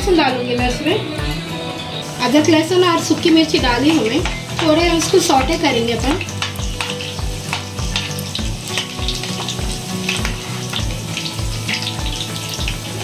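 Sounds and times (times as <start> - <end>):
food sizzling in hot oil: 0.1 - 13.0
oil popping: 3.0 - 13.0.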